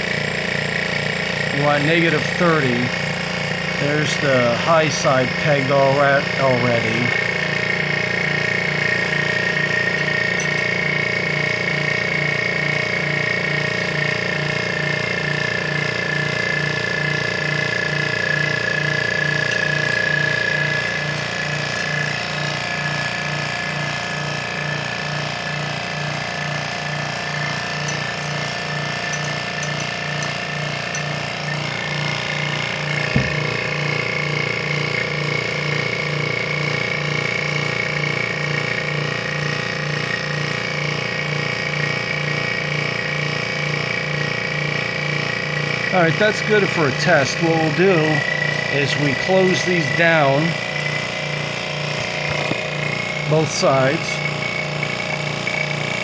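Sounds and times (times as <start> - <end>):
vacuum pump whining and humming: 0.0 - 56.0
knock: 33.2 - 33.4.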